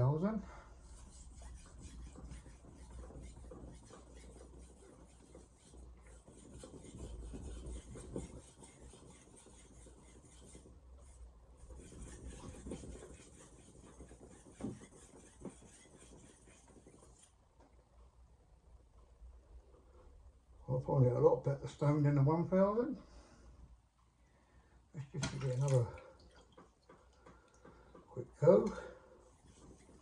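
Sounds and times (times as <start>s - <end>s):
knife rubbing on sharpening stone: 0.8s - 10.7s.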